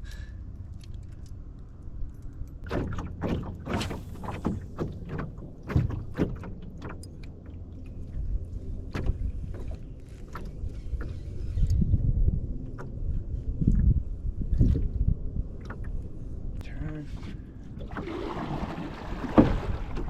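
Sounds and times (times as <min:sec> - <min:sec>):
gear knocking in a canoe: 0:02.6 - 0:11.4, 0:18.0 - 0:20.0
wind rumbling on microphone: 0:07.7 - 0:20.0.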